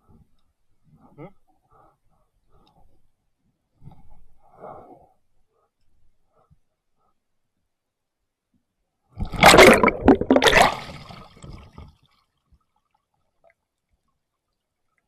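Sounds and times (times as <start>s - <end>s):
water splashing: 9.2s - 11.8s.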